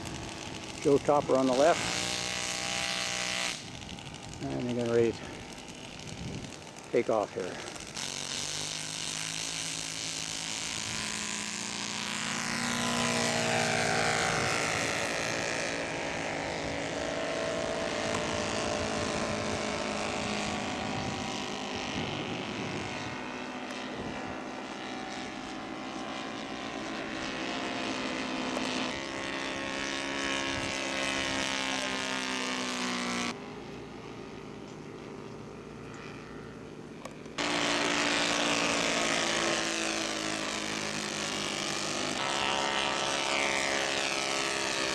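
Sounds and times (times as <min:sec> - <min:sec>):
model plane engines running: 0:00.0 - 0:44.9.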